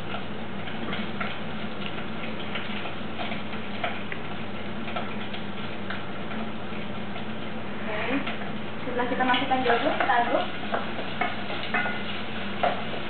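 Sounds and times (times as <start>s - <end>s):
liver frying in oil: 0.0s - 13.0s.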